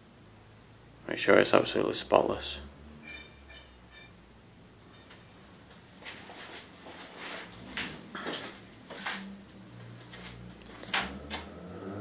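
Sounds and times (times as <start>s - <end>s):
scraping rustles: 6.0s - 9.3s.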